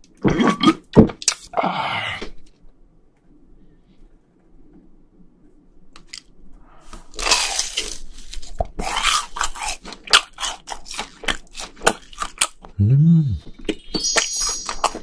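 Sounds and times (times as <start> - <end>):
crunching crispy fried food: 6.8 - 12.8.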